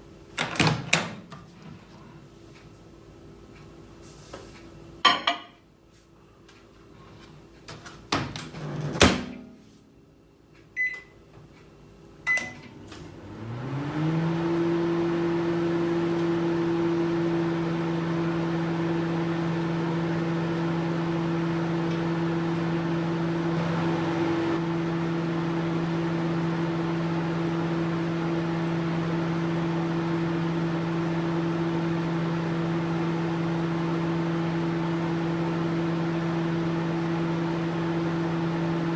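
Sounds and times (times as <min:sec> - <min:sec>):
microwave oven humming: 0:06.2 - 0:38.9
short keypad beeps: 0:10.8 - 0:11.1, 0:12.3 - 0:12.6.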